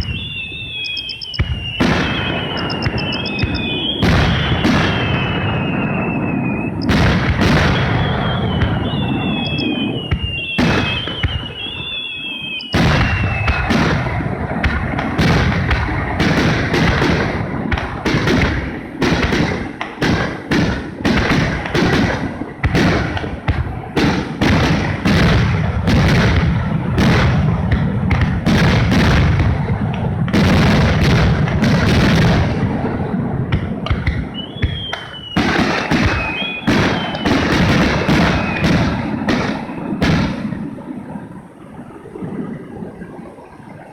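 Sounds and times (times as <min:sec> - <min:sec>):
fireworks booms and cracks: 0:00.0 - 0:43.0.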